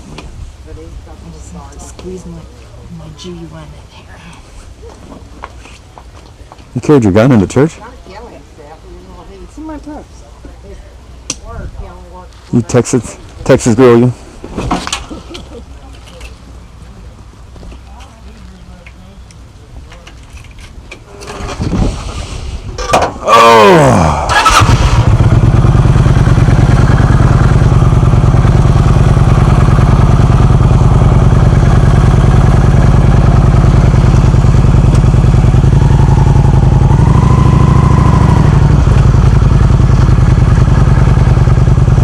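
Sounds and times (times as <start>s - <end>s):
starter whine: 21.0s - 42.0s
motorcycle engine idling: 23.6s - 42.0s.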